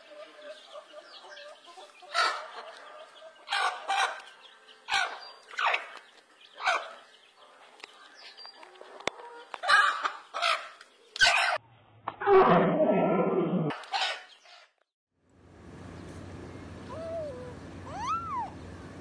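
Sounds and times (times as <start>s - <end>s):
chickens clucking: 0.0s - 11.6s
chicken squawking calls: 16.9s - 18.6s.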